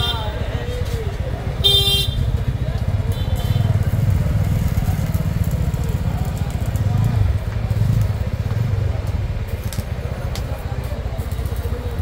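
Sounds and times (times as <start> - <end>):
road traffic engines rumbling: 0.0 - 12.0
vehicle horn toot: 1.6 - 2.3.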